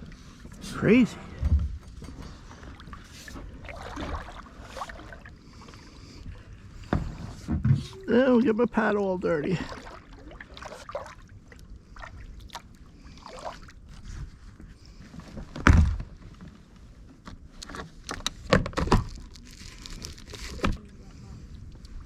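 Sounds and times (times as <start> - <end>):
paddle splashes and drips: 2.1 - 6.8, 8.8 - 14.2.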